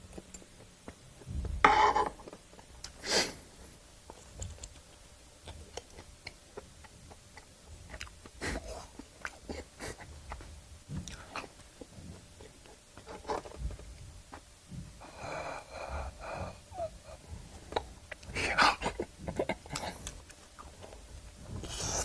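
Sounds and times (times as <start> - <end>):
mouth and eating clicks: 4.1 - 8.4, 17.7 - 21.0
person wheezing breaths: 15.0 - 20.2.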